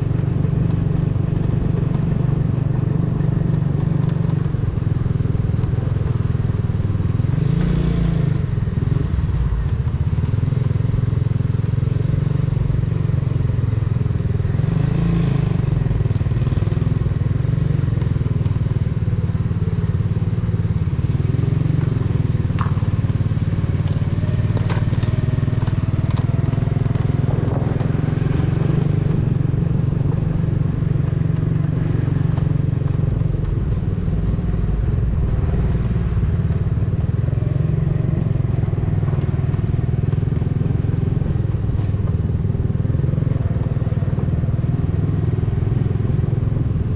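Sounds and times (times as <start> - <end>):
motorcycle exhaust rumble: 0.0 - 46.9.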